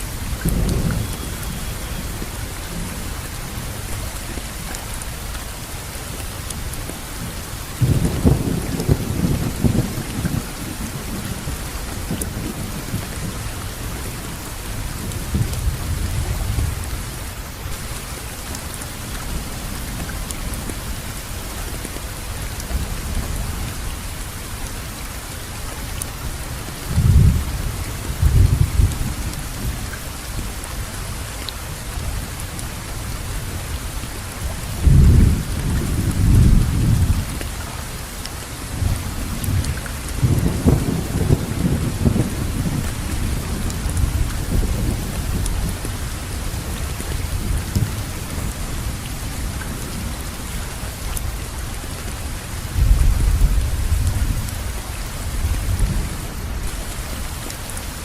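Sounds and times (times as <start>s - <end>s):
heavy rain falling: 0.0s - 58.0s
rolling thunder: 7.8s - 14.4s, 26.9s - 29.8s, 34.7s - 37.4s, 38.8s - 46.7s.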